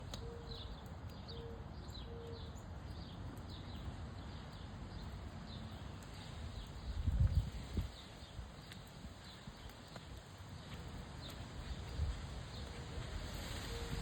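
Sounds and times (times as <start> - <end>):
wood fire crackling: 0.0 - 1.8, 2.5 - 14.0
wind blowing: 6.4 - 9.7, 10.9 - 14.0.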